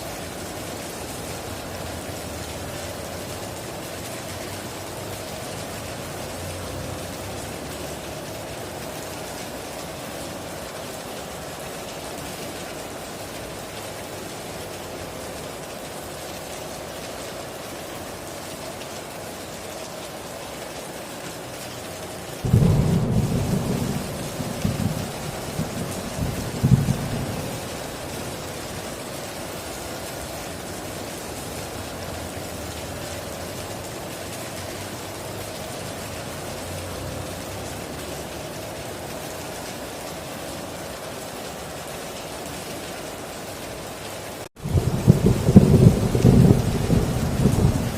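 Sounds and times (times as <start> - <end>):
heavy rain hissing: 0.0 - 47.9
thunder rumble: 22.4 - 28.7, 44.6 - 47.9.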